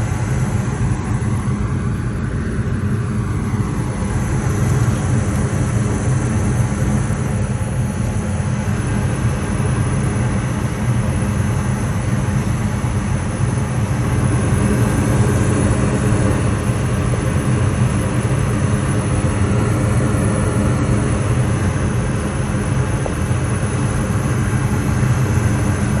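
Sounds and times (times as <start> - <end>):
furnace drone with faint hiss: 0.0 - 26.0.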